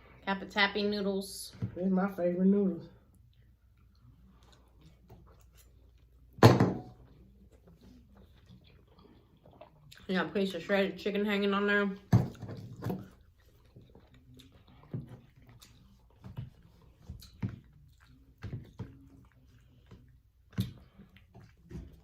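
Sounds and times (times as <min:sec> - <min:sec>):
person chewing food: 0:03.0 - 0:06.4, 0:07.0 - 0:10.1, 0:12.2 - 0:22.0.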